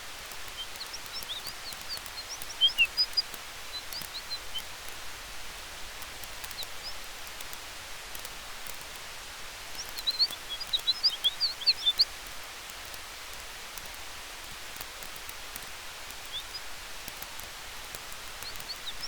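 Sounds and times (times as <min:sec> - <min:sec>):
small bird chirping: 0:00.0 - 0:05.0, 0:06.0 - 0:07.5, 0:09.6 - 0:12.4, 0:15.0 - 0:19.0
fire crackles: 0:00.0 - 0:19.0
wind: 0:00.0 - 0:19.0.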